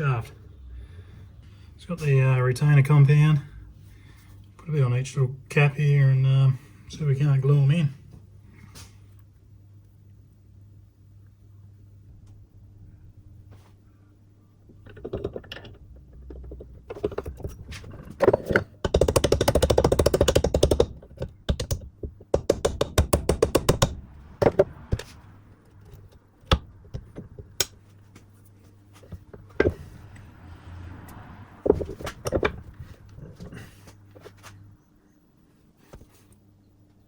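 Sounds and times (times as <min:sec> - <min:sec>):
sharp metal knocks: 0:18.2 - 0:25.1.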